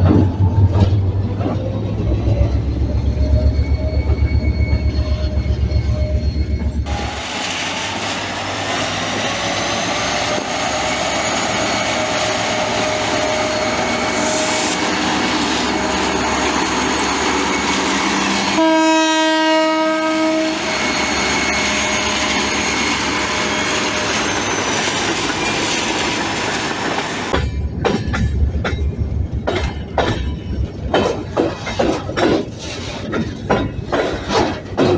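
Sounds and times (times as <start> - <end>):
train wheels rolling: 0.0 - 18.8, 19.5 - 34.9
diesel locomotive engine: 0.0 - 34.9
train horn blast: 18.5 - 20.8.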